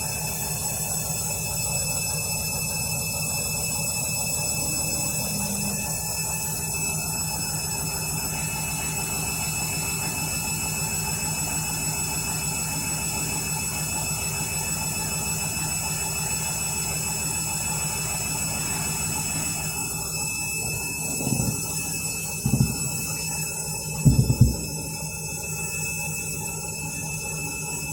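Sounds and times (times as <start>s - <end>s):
washing machine spinning: 0.0s - 27.9s
motor whining tones: 3.5s - 27.9s.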